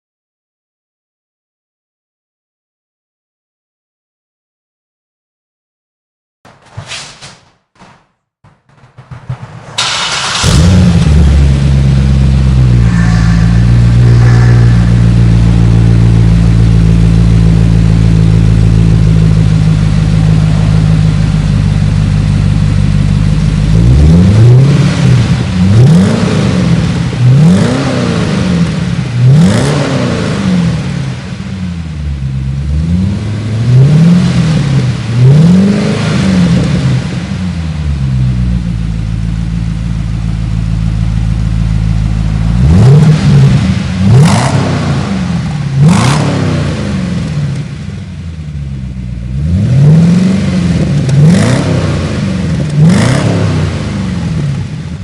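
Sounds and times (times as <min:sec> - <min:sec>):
car engine idling: 0:09.8 - 0:23.8, 0:37.6 - 0:42.7, 0:45.2 - 0:49.4
engine revving in quick blips: 0:42.6 - 0:47.8.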